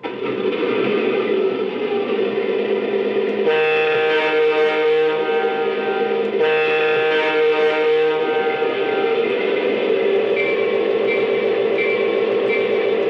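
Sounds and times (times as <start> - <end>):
toy train diesel engine sound: 0.0 - 13.0
electronic diesel horn blasts: 3.3 - 13.0.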